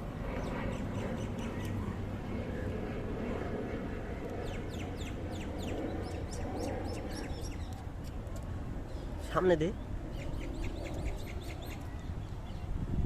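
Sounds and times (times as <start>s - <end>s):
birds chirping: 4.4s - 12.7s.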